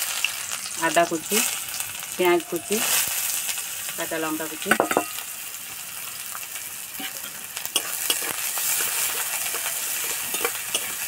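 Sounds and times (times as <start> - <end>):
vegetables sizzling in hot oil: 0.0 - 11.0
spatula scraping metal pan: 7.0 - 11.0.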